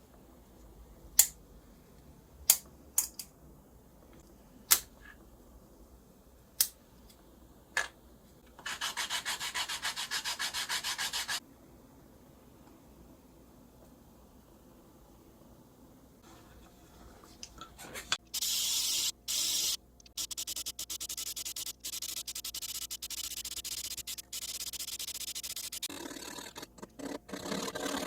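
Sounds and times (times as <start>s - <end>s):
sandpaper rubbing on wood: 8.7s - 11.4s.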